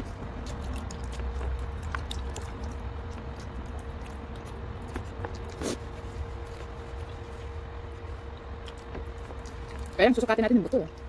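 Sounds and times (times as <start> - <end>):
faint steady hum: 0.0 - 11.0
wet chewing and sucking: 0.0 - 11.0.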